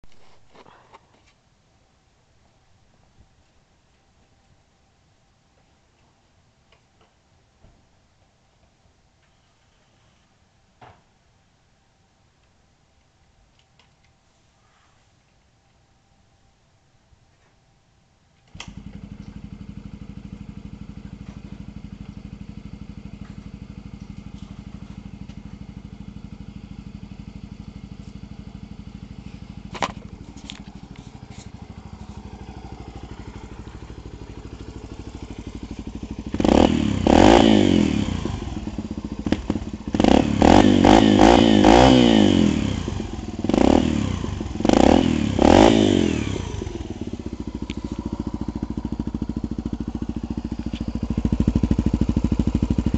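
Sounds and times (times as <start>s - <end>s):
motorcycle engine idling and revving: 18.5s - 52.9s.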